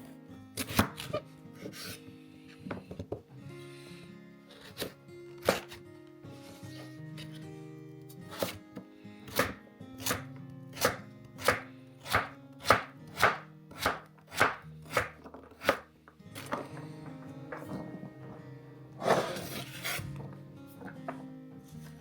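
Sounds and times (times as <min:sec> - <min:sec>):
soft background music: 0:00.0 - 0:22.0
knife chopping on cutting board: 0:00.6 - 0:01.2, 0:08.3 - 0:08.6, 0:09.3 - 0:10.2, 0:10.8 - 0:15.8.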